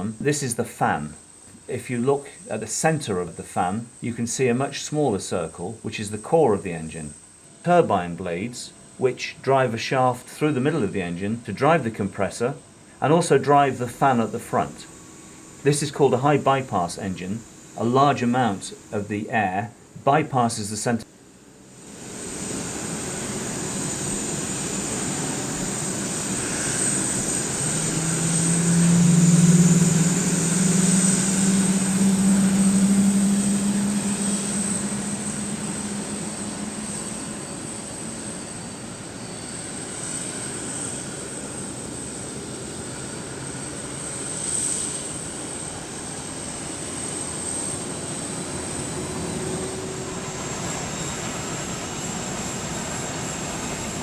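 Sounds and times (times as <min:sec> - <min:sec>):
jet engines whining: 0:00.0 - 0:54.0
low hum: 0:20.9 - 0:54.0.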